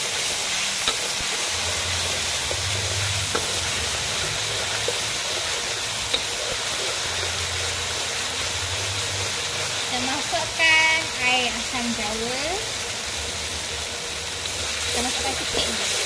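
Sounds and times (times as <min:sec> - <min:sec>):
metal spatula stirring: 0:00.0 - 0:10.1
paste sizzling in hot oil: 0:00.0 - 0:16.0.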